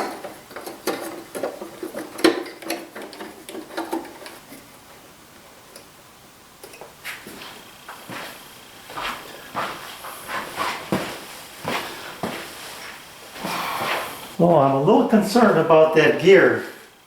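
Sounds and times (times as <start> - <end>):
metal parts clicking and tapping: 0.0 - 4.4.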